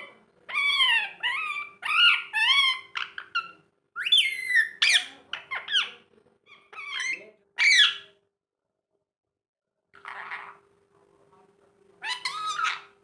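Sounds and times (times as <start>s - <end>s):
parakeet squawking and chattering: 0.0s - 8.2s, 10.0s - 10.6s, 12.0s - 13.0s.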